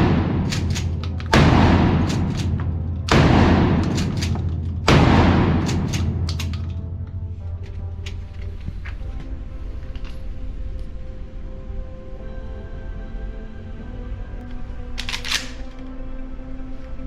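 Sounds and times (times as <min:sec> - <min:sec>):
shotgun shots: 0:00.0 - 0:07.0
background music: 0:00.0 - 0:17.0.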